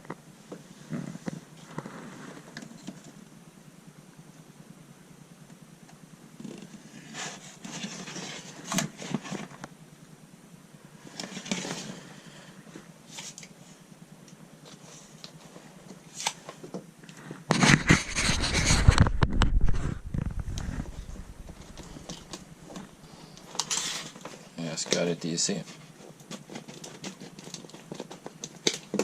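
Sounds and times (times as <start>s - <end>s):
mat rustling and scraping: 0.8s - 2.6s, 6.7s - 9.7s, 14.6s - 28.4s
rubbing and knocking: 17.5s - 22.1s.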